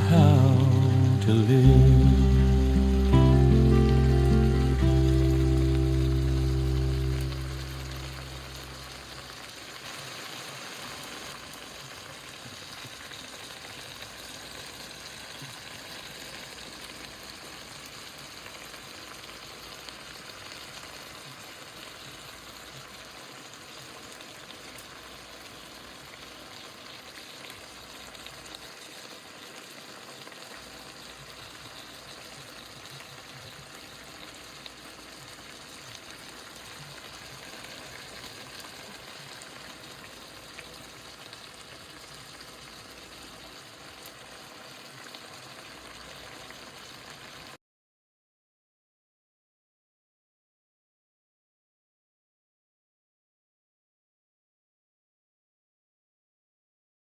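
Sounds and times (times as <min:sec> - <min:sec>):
stir-fry sizzling in a hot pan: 0:00.0 - 0:33.0.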